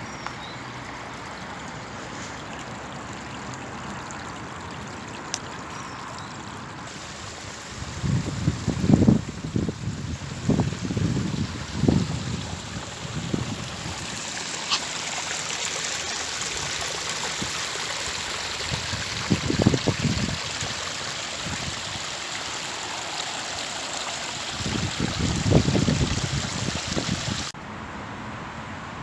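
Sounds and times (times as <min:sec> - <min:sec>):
running water rushing: 0:00.0 - 0:27.6
wind buffeting on microphone: 0:07.4 - 0:14.2, 0:18.6 - 0:20.8, 0:24.5 - 0:27.5.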